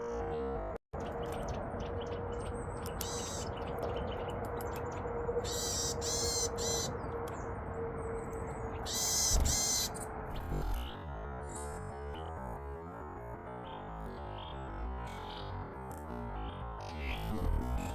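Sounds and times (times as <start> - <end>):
songbirds buzzy calls: 1.0 - 7.1, 8.7 - 11.6.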